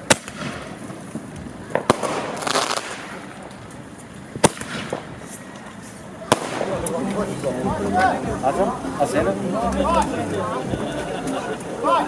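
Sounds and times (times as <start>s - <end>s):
fireworks bangs: 0.0s - 7.1s
fireworks crackling hiss: 0.0s - 10.1s.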